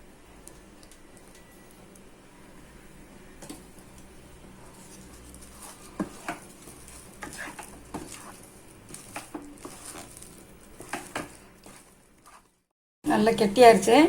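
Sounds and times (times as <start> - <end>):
utensil stirring thick dough: 3.8 - 12.7
utensil scraping and knocking pan: 4.8 - 12.5.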